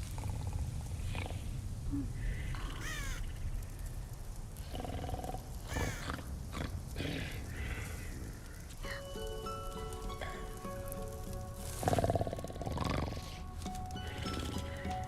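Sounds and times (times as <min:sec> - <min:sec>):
animal calls and grunts: 0:00.0 - 0:03.9, 0:04.6 - 0:09.1, 0:11.7 - 0:15.0.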